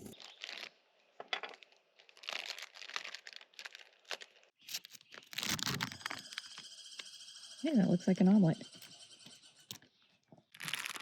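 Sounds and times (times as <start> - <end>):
plastic bag crinkling: 0.0 - 6.2, 10.6 - 11.0.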